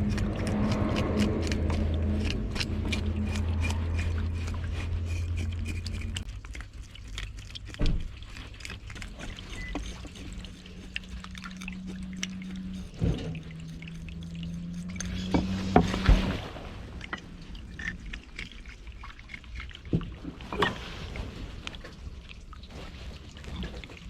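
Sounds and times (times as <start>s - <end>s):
steady low hum: 0.0s - 19.2s
water pouring and dripping: 0.0s - 24.0s.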